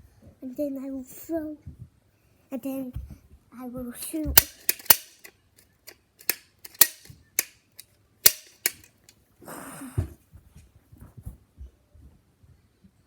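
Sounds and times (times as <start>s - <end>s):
toy firing clicks: 4.4s - 9.1s.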